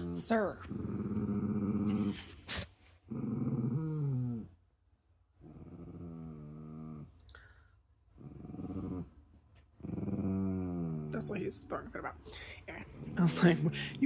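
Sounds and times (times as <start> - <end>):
dog growling: 0.0 - 4.6, 5.4 - 14.0.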